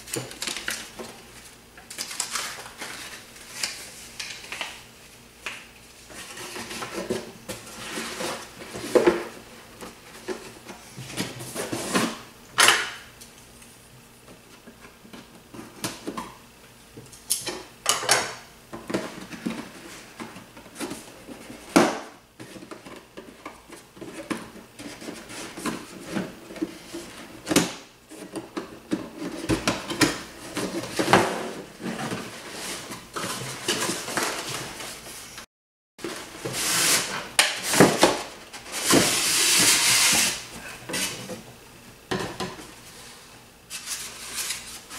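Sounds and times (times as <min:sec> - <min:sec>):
packaging rustling: 0:00.1 - 0:04.8.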